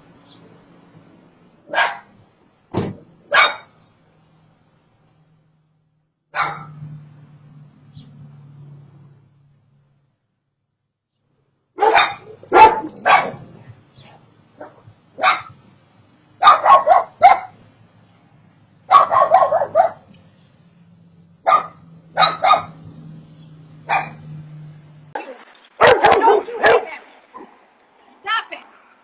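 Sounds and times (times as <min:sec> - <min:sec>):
small dog barking: 0:01.7 - 0:02.1, 0:03.3 - 0:03.7, 0:06.3 - 0:06.8, 0:11.8 - 0:15.6, 0:16.4 - 0:17.6, 0:18.9 - 0:20.1, 0:21.4 - 0:22.8, 0:23.9 - 0:24.2, 0:25.2 - 0:27.6.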